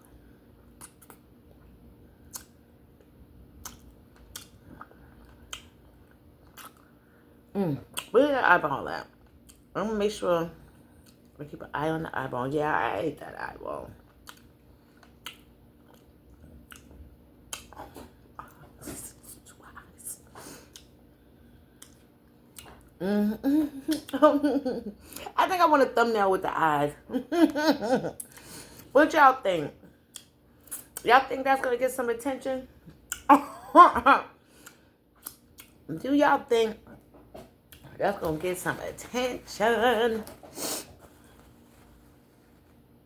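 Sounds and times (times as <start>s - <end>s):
wet mouth clicks and smacks: 0.7s - 1.2s, 2.3s - 2.6s, 3.6s - 4.6s, 5.2s - 5.8s, 6.4s - 6.9s, 14.2s - 16.1s, 34.6s - 35.8s
mouth chewing with smacks: 0.7s - 7.0s, 11.0s - 11.4s, 14.0s - 21.0s, 21.7s - 23.0s, 34.6s - 35.9s
close-up chewing: 3.6s - 7.0s.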